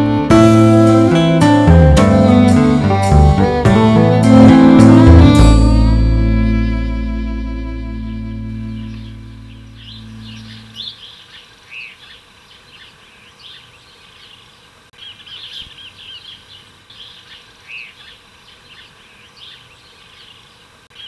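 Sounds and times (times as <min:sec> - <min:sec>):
songbirds chirping and singing: 0:08.6 - 0:21.0.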